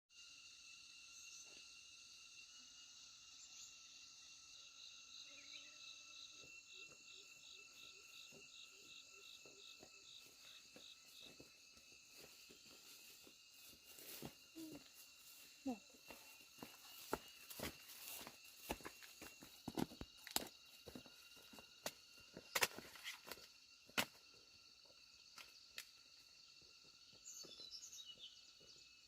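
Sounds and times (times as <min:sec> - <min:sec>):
cricket trills: 0:00.1 - 0:29.0
pulsing insect chirp: 0:00.1 - 0:29.0.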